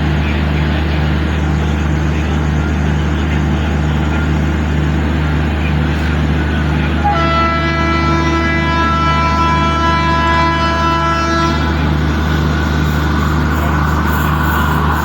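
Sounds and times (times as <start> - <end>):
low rumble of train: 0.0 - 15.0
multi-tone locomotive horn: 6.1 - 15.0.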